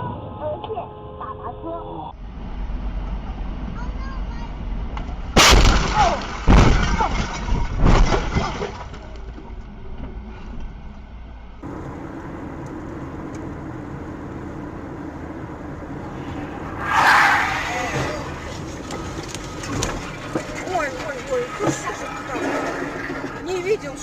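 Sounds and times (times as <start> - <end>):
engine and road noise: 0.0 - 24.0
car crash: 5.3 - 9.4, 15.9 - 24.0
heavy impacts: 15.0 - 24.0.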